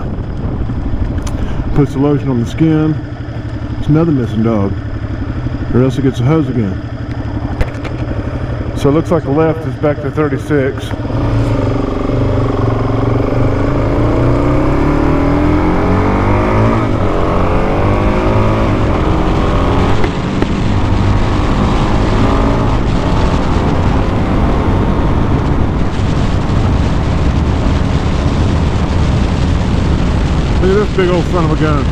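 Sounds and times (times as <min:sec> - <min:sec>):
wind rush: 0:00.0 - 0:02.4, 0:10.8 - 0:31.9
dirt bike engine accelerating: 0:00.0 - 0:31.9.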